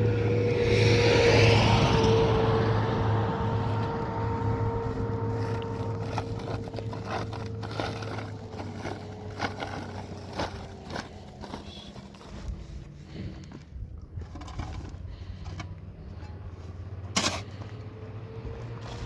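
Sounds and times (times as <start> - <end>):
vehicle engine humming: 0.0 - 19.0
light clicks and scrapes: 5.0 - 17.9.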